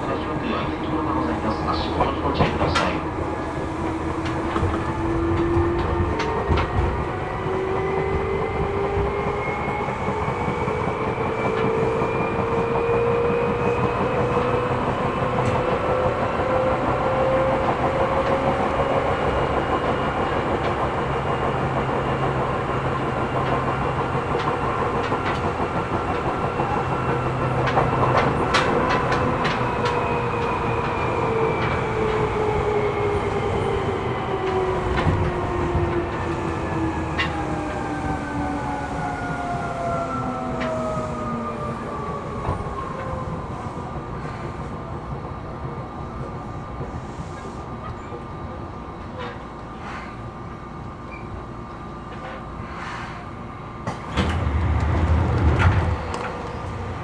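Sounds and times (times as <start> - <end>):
train rumble: 0.0 - 57.0
wheels clicking over rail joints: 23.4 - 32.3
train motor whine: 50.7 - 57.0.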